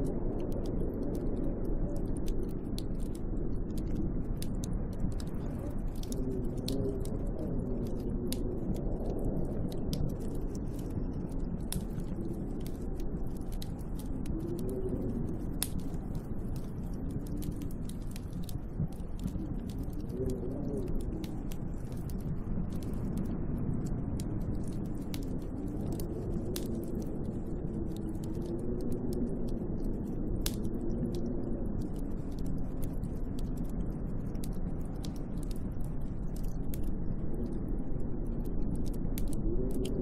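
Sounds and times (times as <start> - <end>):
sharp ticks and crackles: 0.0 - 40.0
wind howling in gusts: 0.0 - 40.0.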